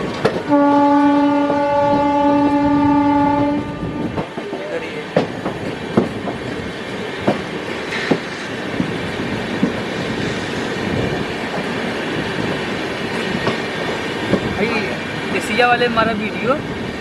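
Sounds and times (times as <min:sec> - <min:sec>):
wheels clacking over rail joints: 0:00.0 - 0:01.7, 0:04.0 - 0:15.6
train coach rumbling: 0:00.0 - 0:17.0.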